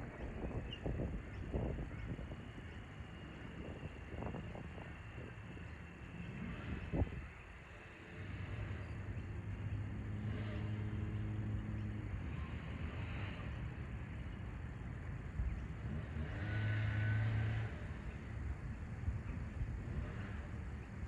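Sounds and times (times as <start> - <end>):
passing motor vehicles hum: 0.0 - 21.0.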